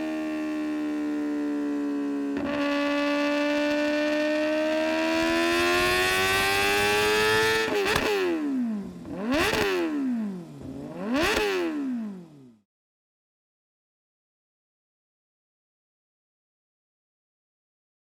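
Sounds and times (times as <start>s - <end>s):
motorcycle engine revving: 0.0s - 12.6s
motorcycle throttle blips: 0.4s - 12.5s.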